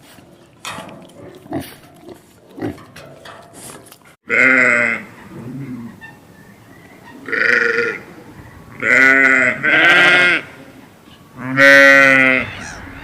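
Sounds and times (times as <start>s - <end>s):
sheep or goat bleating: 4.3s - 5.1s, 8.8s - 10.6s, 11.4s - 13.0s.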